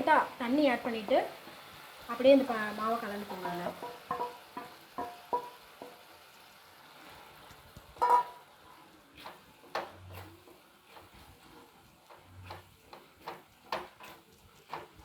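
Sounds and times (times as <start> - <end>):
batter being stirred: 7.0 - 15.0.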